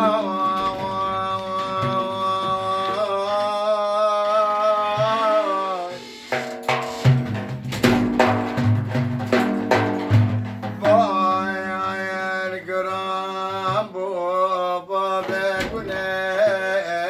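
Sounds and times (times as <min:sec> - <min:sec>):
low held tone: 0:00.0 - 0:01.4, 0:10.8 - 0:12.4
man singing a held note: 0:00.0 - 0:06.2, 0:10.8 - 0:13.8
drum strokes in steady beat: 0:00.0 - 0:14.0.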